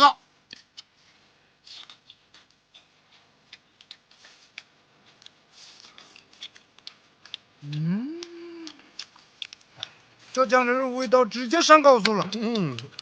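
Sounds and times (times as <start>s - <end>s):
people eating: 5.6s - 13.0s
person humming mmm: 7.6s - 9.0s, 12.2s - 13.0s.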